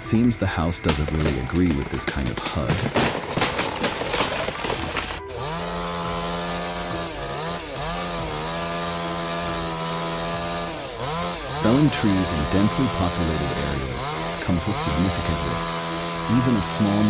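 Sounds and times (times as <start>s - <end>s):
rough crackling noise: 0.9s - 5.3s
chainsaw running at high revs: 3.1s - 17.0s.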